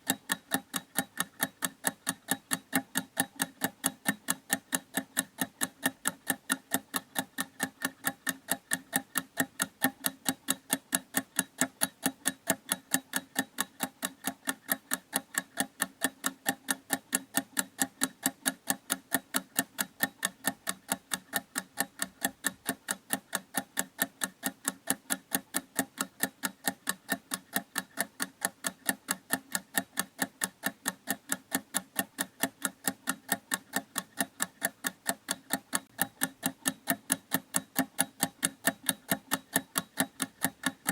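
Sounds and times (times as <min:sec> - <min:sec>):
clock ticking: 0:00.0 - 0:40.9.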